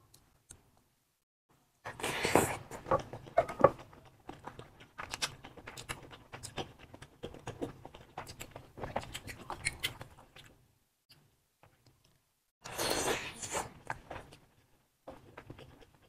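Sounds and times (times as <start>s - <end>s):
close-miked wet chewing: 3.0s - 10.6s.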